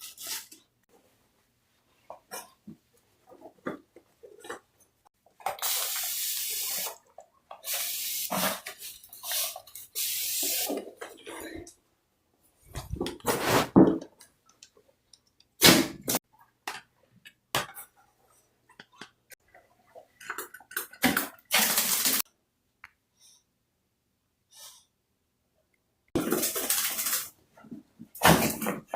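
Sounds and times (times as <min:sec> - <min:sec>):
water splashing in bathtub: 0:19.5 - 0:22.2, 0:26.2 - 0:27.3.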